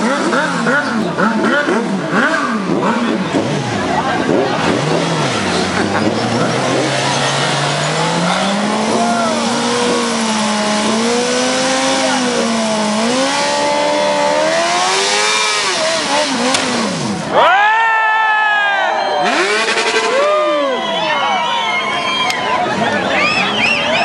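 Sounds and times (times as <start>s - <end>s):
motorcycle engine revving: 0.0s - 17.4s, 19.2s - 20.6s.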